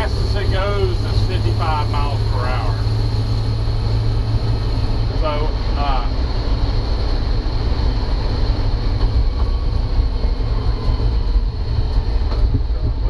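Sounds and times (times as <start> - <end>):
truck engine droning while driving: 0.0 - 13.0.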